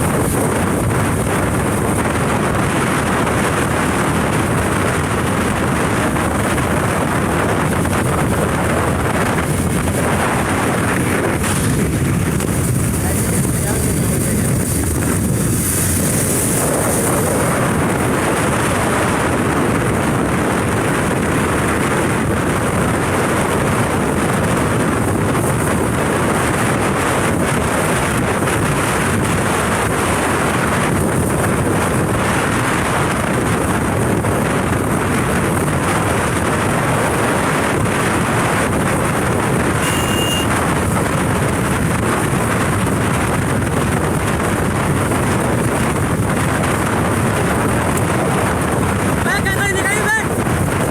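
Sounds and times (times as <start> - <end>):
motorcycle engine running: 0.0 - 50.9
wind buffeting microphone: 0.0 - 50.9
brief high tone: 39.8 - 40.5.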